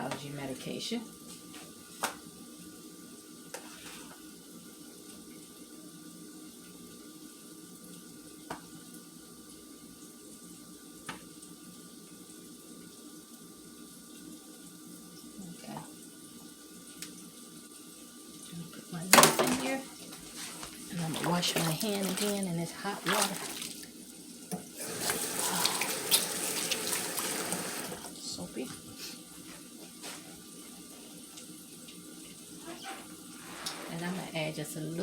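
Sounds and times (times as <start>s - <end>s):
faucet running into sink: 19.0s - 20.1s, 20.9s - 28.4s.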